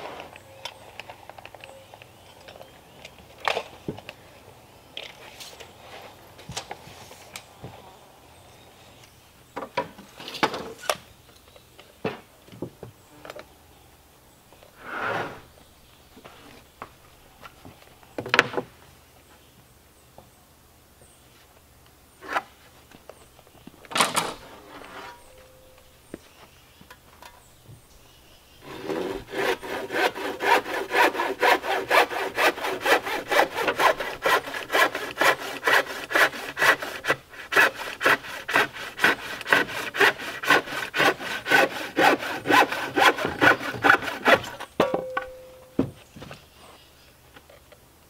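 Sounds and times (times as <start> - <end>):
hand saw cutting wood: 28.6 - 44.7.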